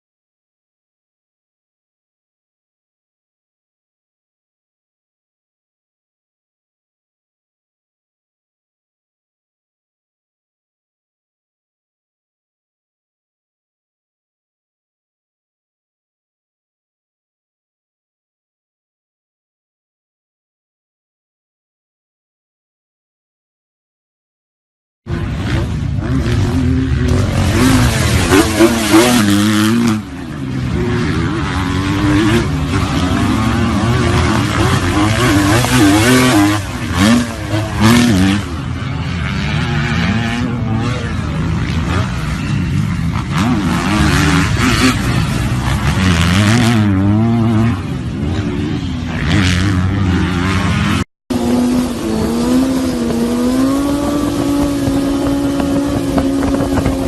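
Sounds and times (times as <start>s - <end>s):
motorcycle engines revving: 25.1s - 57.0s.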